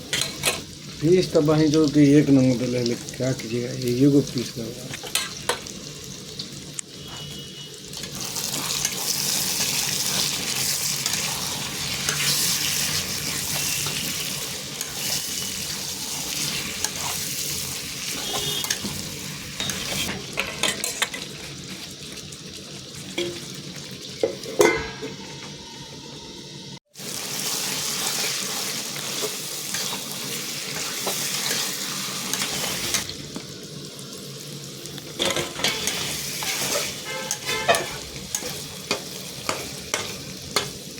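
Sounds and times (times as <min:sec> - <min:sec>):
chicken sizzling in a pan: 0:00.0 - 0:40.9
stirring scrapes and knocks: 0:16.2 - 0:17.4.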